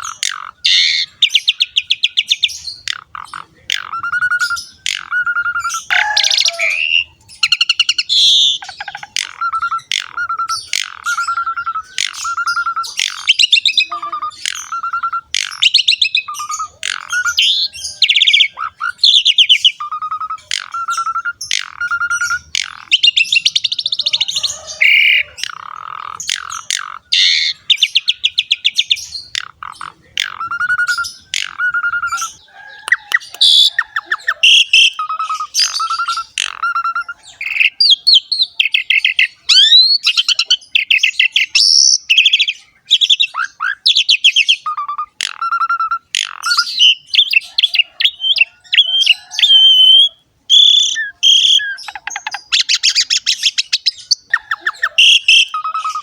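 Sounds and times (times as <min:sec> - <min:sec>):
starling singing: 0:00.0 - 0:56.0.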